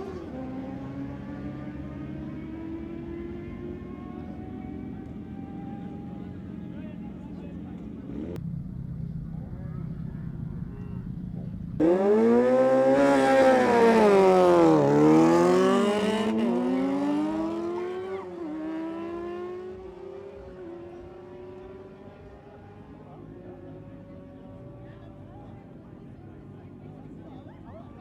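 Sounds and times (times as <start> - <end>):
superbike engines revving: 11.8 - 22.4.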